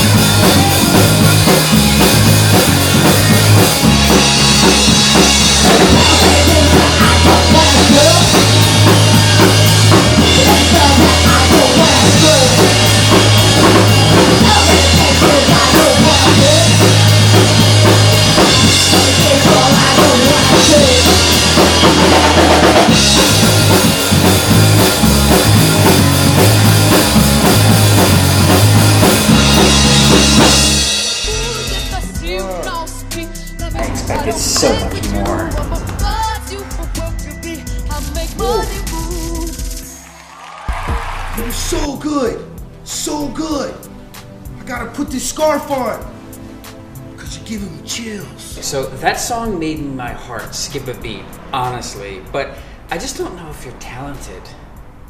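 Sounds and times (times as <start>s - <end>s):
drum kit kick and snare: 0.0s - 32.8s, 33.8s - 42.7s
rock band playing: 0.0s - 52.8s.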